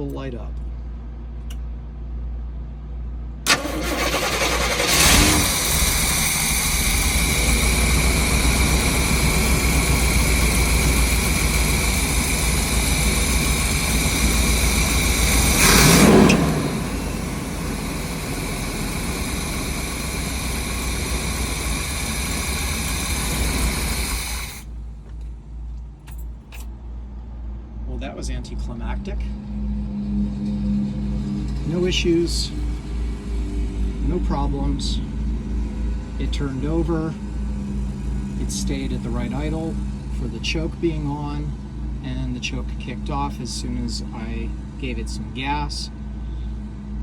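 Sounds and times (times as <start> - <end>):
car engine cranking and idling: 3.3 - 26.9, 28.0 - 45.7
engine throttle blip: 3.5 - 25.3.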